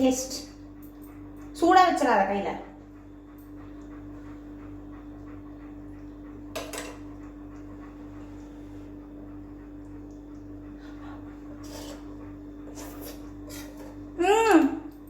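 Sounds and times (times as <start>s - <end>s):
dog panting: 0.0s - 14.2s
low electrical hum: 0.0s - 15.0s.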